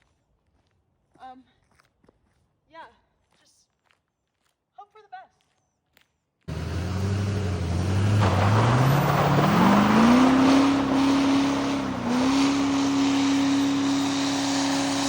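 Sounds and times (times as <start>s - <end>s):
diesel engine revving: 6.5s - 15.0s.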